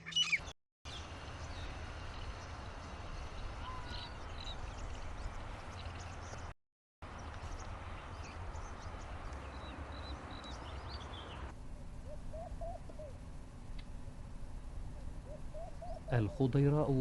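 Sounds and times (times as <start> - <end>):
low rising bird calls: 0.0 - 6.5, 7.2 - 13.3, 14.8 - 17.0
birds chirping: 0.0 - 13.3, 14.3 - 17.0
low background rumble: 7.1 - 17.0.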